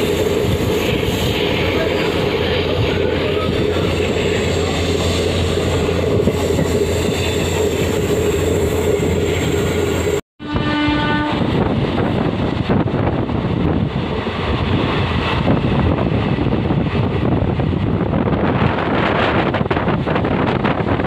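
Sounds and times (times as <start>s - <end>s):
train running rumble: 0.0s - 21.0s
train horn: 10.4s - 11.5s.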